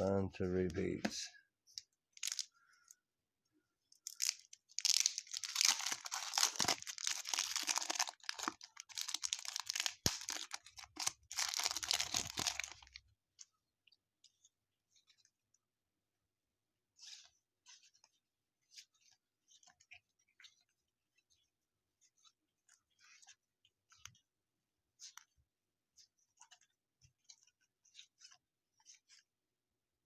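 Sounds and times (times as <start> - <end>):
wrapper tearing and crinkling: 2.2 - 2.4, 4.0 - 13.0.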